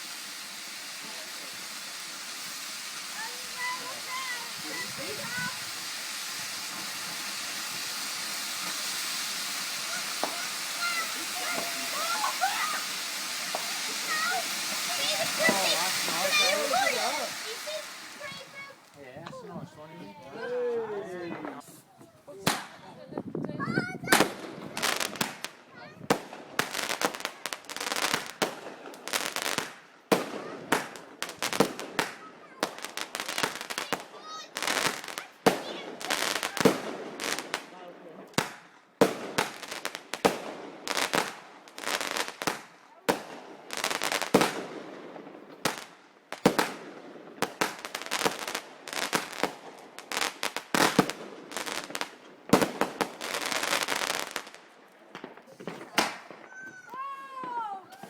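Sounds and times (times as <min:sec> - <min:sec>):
fireworks crackling bangs: 0:00.0 - 0:58.0
loud firework bang: 0:02.3 - 0:18.8.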